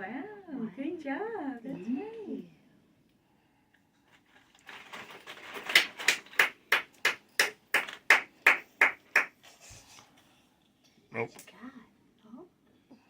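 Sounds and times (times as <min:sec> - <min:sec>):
hands clapping: 0:05.6 - 0:09.4.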